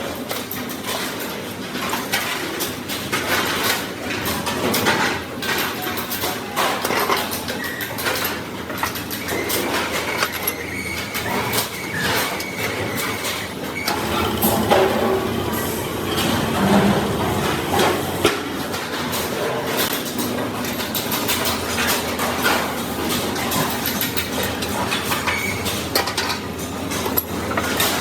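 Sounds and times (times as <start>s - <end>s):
faint steady whine: 13.9s - 18.4s.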